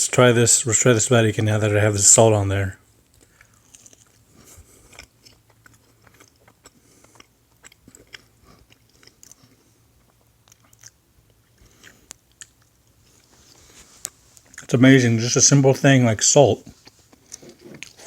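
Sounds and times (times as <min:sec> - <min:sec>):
person chewing fries: 0:03.0 - 0:14.7, 0:16.6 - 0:18.0
small clicks and crunches: 0:03.1 - 0:04.2.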